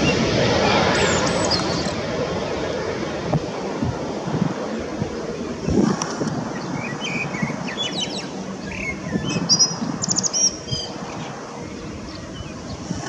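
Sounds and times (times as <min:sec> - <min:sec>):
steady low rumble: 0:00.0 - 0:13.0
small birds chirping: 0:01.0 - 0:02.0, 0:06.4 - 0:13.0.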